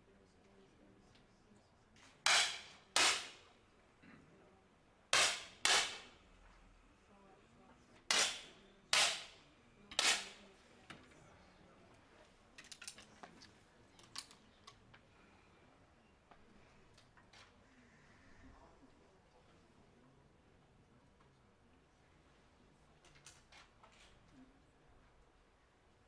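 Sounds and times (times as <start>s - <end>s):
air pistol shots: 2.3s - 3.4s, 5.2s - 6.1s, 8.1s - 9.3s.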